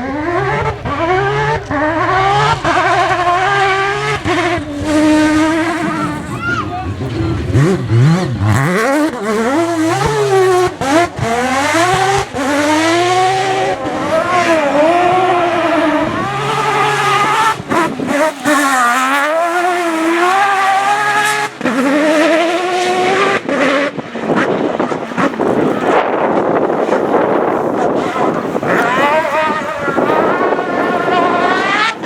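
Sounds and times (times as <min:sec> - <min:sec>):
rally car engine revving: 0:00.0 - 0:32.0
tyre squeal: 0:04.3 - 0:07.8.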